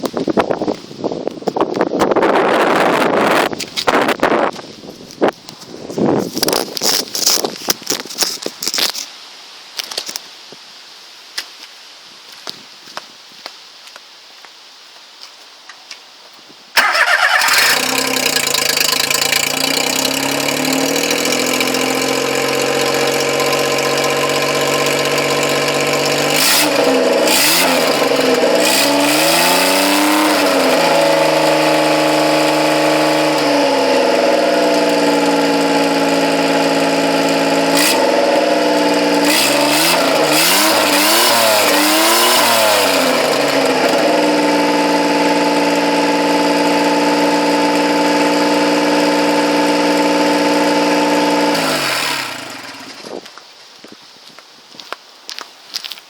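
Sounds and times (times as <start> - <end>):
engine revving: 16.8 - 53.1
engine starting and idling: 16.8 - 53.1.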